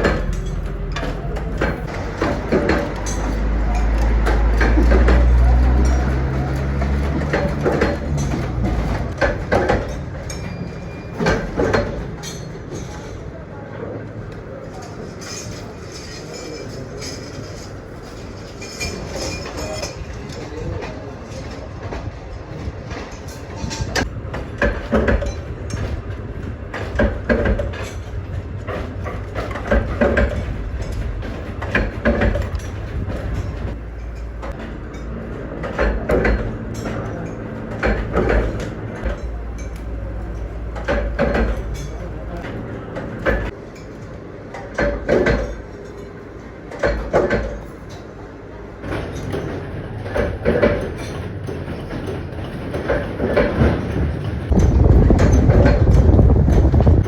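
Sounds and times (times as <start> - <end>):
knocks and rattles: 0.0 - 13.2, 14.7 - 43.9, 44.5 - 48.1, 48.8 - 57.0
machinery clattering: 0.0 - 57.0
steady low rumble: 54.4 - 57.0.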